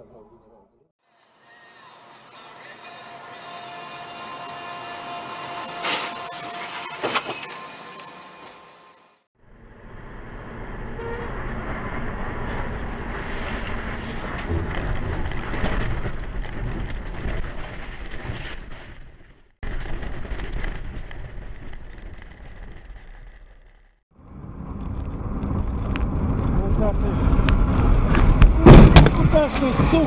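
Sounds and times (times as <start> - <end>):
car road and wind noise: 9.4 - 22.8, 24.2 - 30.0.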